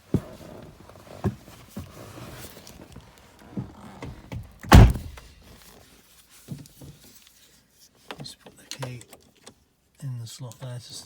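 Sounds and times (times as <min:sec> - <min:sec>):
light knocks and rustles: 0:00.0 - 0:07.4
car door shutting: 0:04.6 - 0:05.2.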